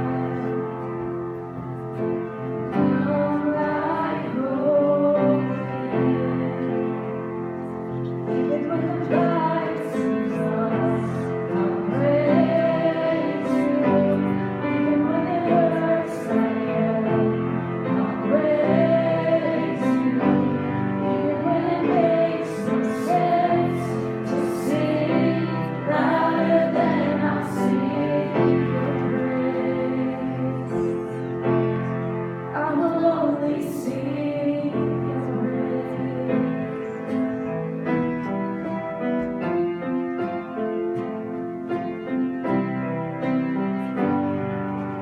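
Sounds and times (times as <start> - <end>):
voices singing: 0.0 - 0.8, 2.7 - 7.3, 8.3 - 31.6, 32.5 - 37.3.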